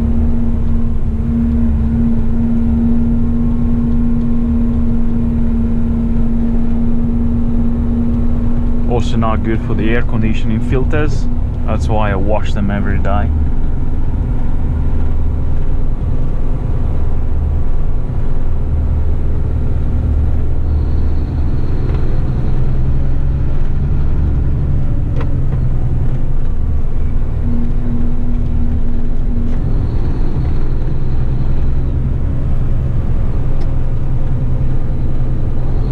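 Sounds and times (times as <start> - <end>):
short steady low tone: 0.0 - 14.2, 26.6 - 34.0
truck diesel engine running: 0.0 - 35.9
tyre and road rumble: 0.0 - 35.9.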